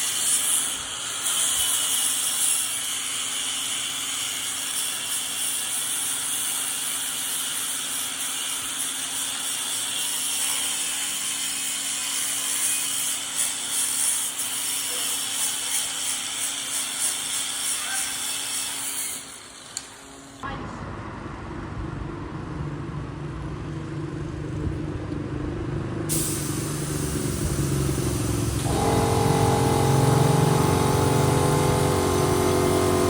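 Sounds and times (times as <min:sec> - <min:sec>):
power tool cutting wood: 0:00.0 - 0:19.9, 0:26.6 - 0:33.0.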